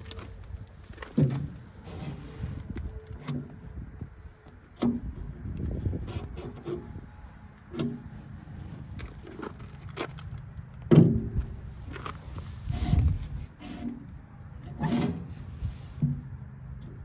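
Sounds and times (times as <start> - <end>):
hands working on a hay baler: 0.0 - 17.0.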